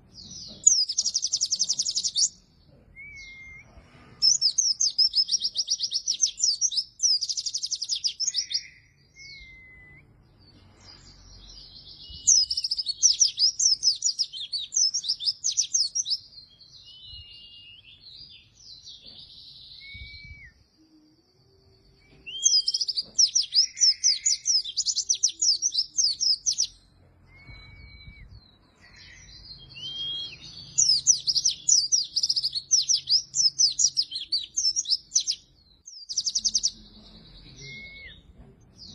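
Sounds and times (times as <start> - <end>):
bird twittering song: 0.0 - 38.9
short whistled bird notes: 27.3 - 30.5.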